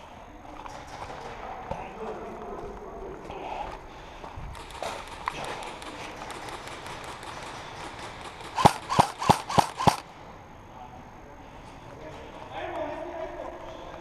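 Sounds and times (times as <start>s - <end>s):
airsoft gun shots: 4.5s - 10.1s.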